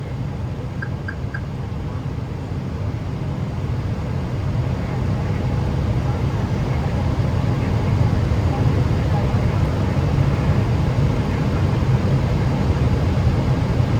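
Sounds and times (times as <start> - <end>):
airplane engines rumbling: 0.0 - 13.9.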